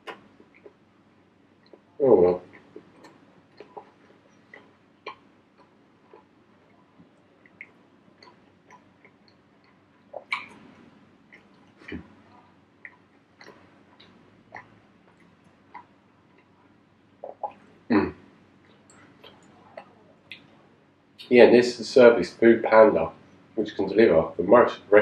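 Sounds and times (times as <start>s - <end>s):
person chewing food: 0.0s - 0.9s, 1.5s - 17.6s.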